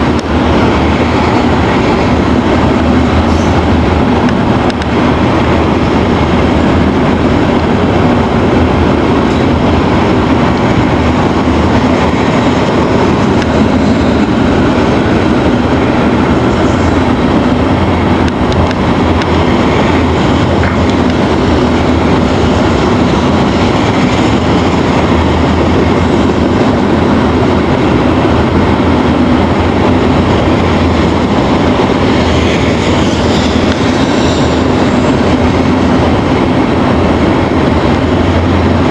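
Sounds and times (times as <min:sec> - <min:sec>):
freight train wheels rumbling on rail: 0:00.0 - 0:38.9.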